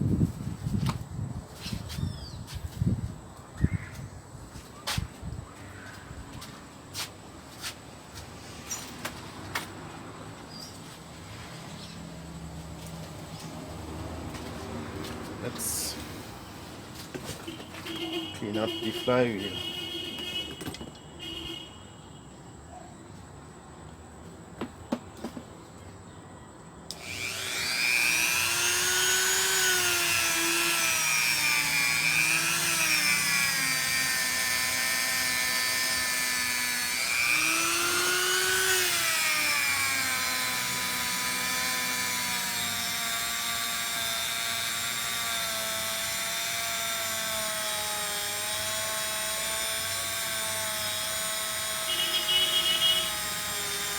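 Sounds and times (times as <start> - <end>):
handheld power tool running: 26.9 - 53.9.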